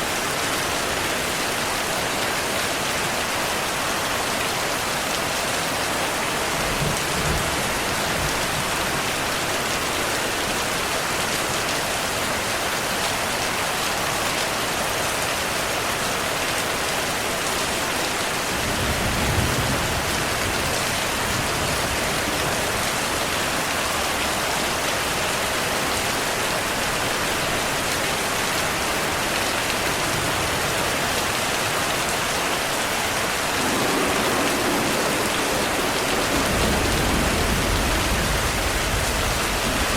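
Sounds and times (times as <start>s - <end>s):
heavy rain falling: 0.0s - 39.9s
thunder rumbling: 33.3s - 39.9s.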